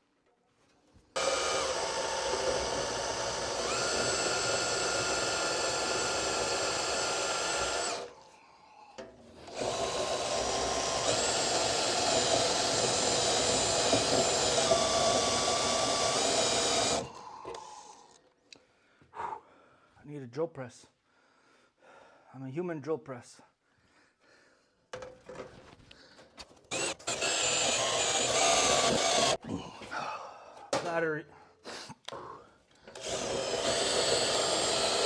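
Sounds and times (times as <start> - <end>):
power drill motor whine: 1.2 - 8.2, 9.4 - 18.2, 26.7 - 29.4, 32.9 - 35.0.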